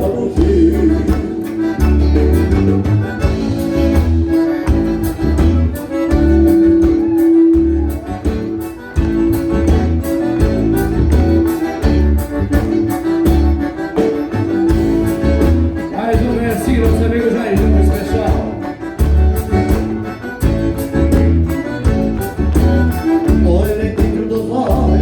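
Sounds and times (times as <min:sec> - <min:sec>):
pulsing bass: 0:00.0 - 0:13.7, 0:14.4 - 0:25.0
accordion holding long notes: 0:00.0 - 0:25.0
strummed beat: 0:00.0 - 0:25.0.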